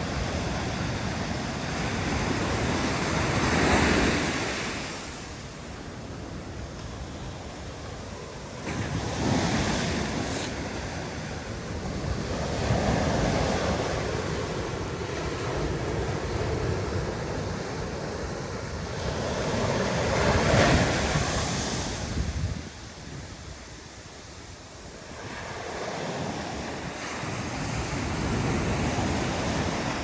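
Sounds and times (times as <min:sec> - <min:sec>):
wind rumbling on microphone: 0:00.0 - 0:30.0
ocean surf breaking: 0:06.8 - 0:30.0.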